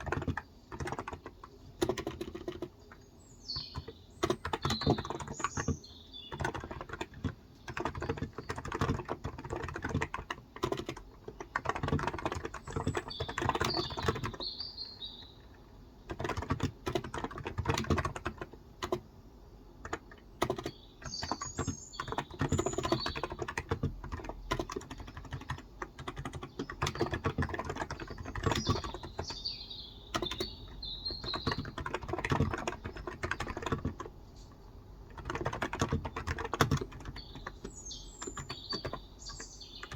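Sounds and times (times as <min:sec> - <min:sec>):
birds chirping: 0:00.0 - 0:18.5, 0:19.6 - 0:39.9
typing on a keyboard: 0:00.0 - 0:19.1, 0:19.8 - 0:29.5, 0:30.1 - 0:39.9.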